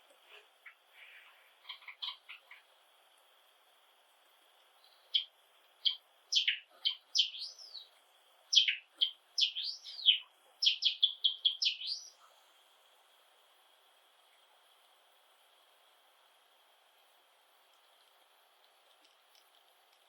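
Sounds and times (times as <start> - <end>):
sparrows chirping: 1.6 - 2.7, 4.8 - 12.2.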